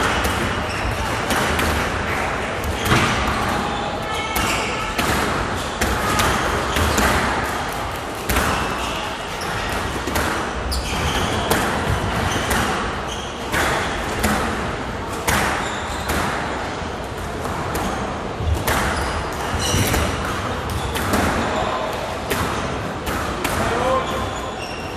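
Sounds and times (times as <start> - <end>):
shoes squeaking on court floor: 8.4 - 9.8, 10.6 - 14.3, 15.3 - 16.2, 17.8 - 22.0, 23.7 - 24.9.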